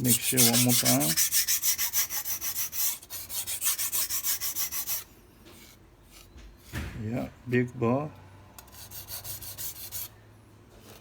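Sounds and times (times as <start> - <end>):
knife scraping on whetstone: 0.0 - 5.0.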